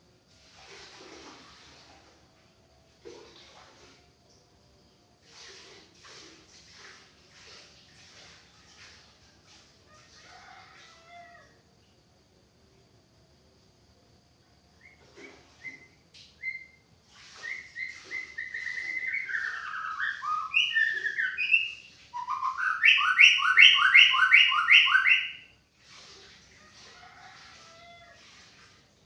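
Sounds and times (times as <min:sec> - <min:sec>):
bird singing whistled notes: 0:15.6 - 0:25.4.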